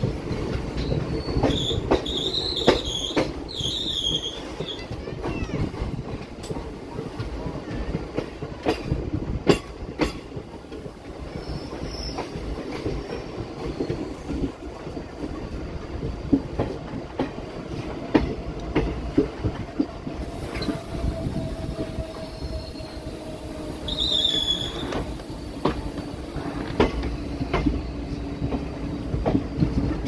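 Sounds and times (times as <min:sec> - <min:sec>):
train rumbling on track: 0:00.0 - 0:30.0
faint train wheel squeal: 0:00.3 - 0:06.0, 0:11.2 - 0:15.1, 0:20.2 - 0:30.0.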